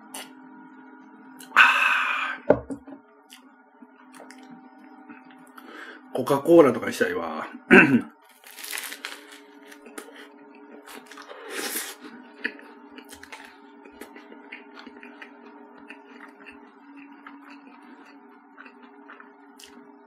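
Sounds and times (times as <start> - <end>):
chewing crackles and clicks: 3.3 - 5.6, 12.4 - 19.9
bread crunch: 8.3 - 10.2.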